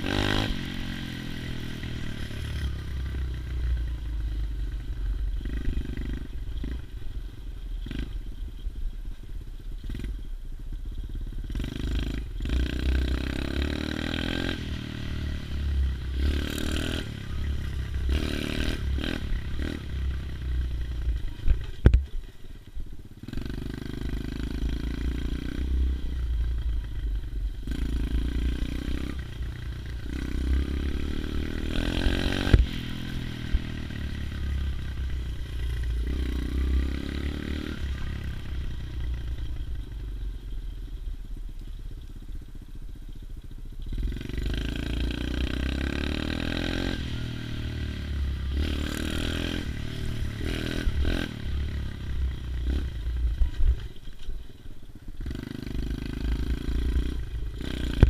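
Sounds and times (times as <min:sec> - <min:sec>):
pit bike engine revving: 0:00.0 - 0:03.5, 0:11.4 - 0:21.3, 0:27.6 - 0:38.8, 0:43.9 - 0:53.6, 0:55.2 - 0:58.0.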